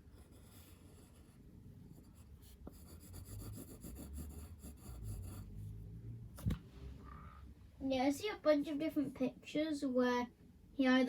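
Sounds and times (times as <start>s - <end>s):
drawing tool scratching paper: 0.0s - 5.7s.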